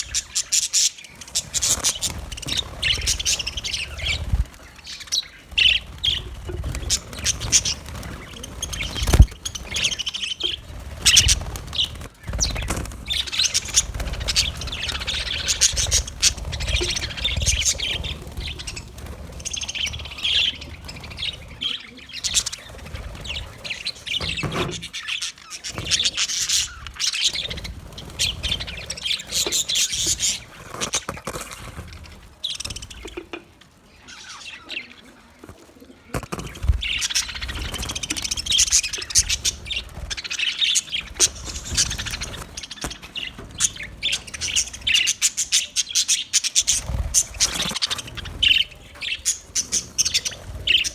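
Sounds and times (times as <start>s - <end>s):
budgerigars chirping and warbling: 0.0s - 50.9s.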